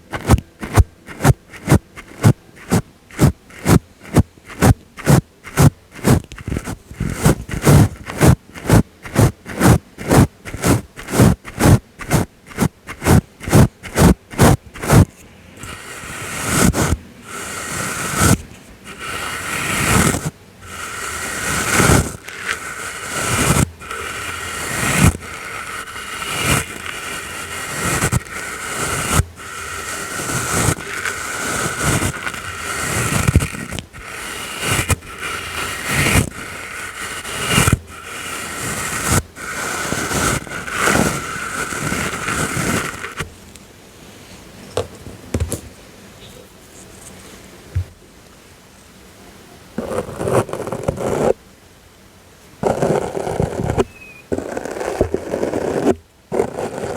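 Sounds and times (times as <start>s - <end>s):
soft brush sweeps on microphone: 0.0s - 43.4s.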